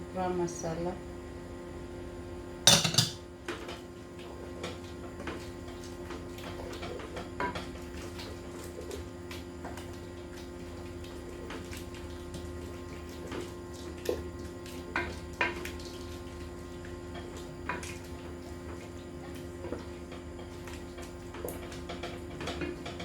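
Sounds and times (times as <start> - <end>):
metal utensil clattering on pan: 2.7 - 3.2.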